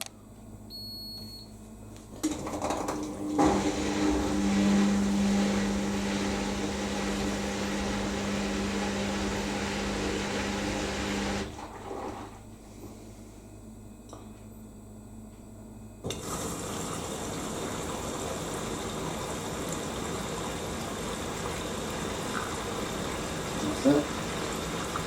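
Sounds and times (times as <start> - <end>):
water rushing through washing machine: 2.2 - 12.5, 16.1 - 25.0.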